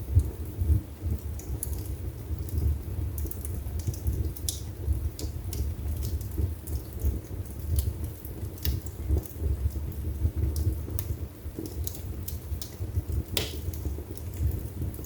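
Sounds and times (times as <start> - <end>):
fire crackling and popping: 0.0 - 15.0
wood fire burning: 0.0 - 15.0.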